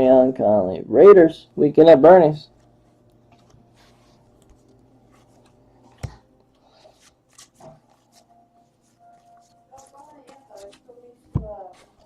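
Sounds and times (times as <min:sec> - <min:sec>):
trading cards rustling: 0:02.6 - 0:12.0.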